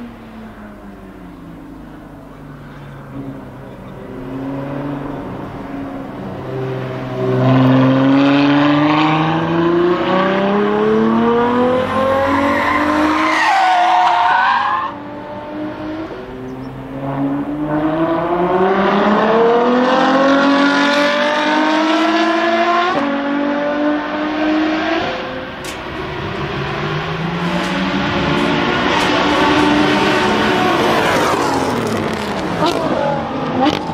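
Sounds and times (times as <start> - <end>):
another car engine climbing: 0.0 - 33.9
car engine accelerating hard: 0.0 - 33.9.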